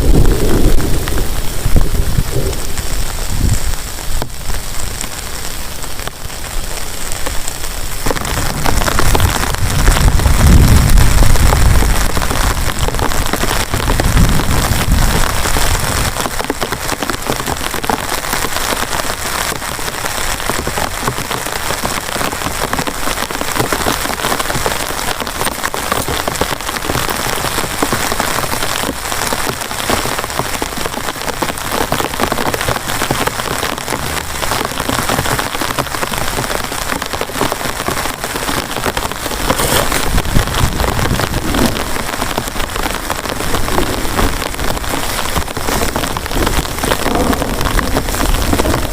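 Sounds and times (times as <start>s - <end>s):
low rumble: 0.0s - 4.6s
heavy rain hissing: 0.0s - 48.9s
raindrops hitting a surface: 0.0s - 48.9s.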